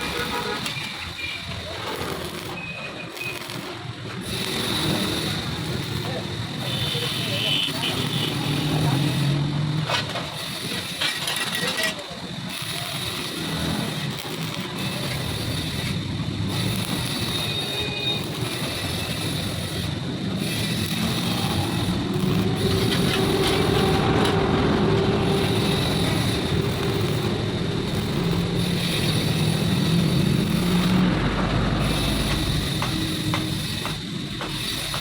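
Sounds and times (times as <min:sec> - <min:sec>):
machine motor running: 0:12.5 - 0:35.0.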